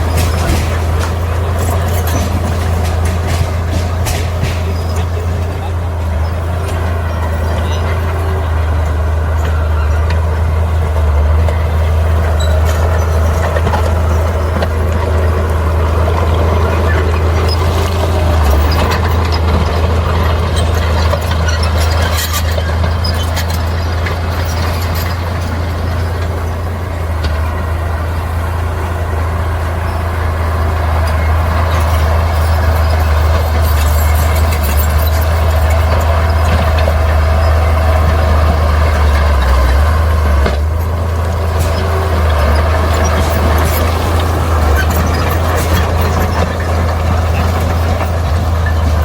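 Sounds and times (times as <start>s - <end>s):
short clanks and clicks: 0.0s - 8.2s
diesel engine droning: 0.0s - 49.0s.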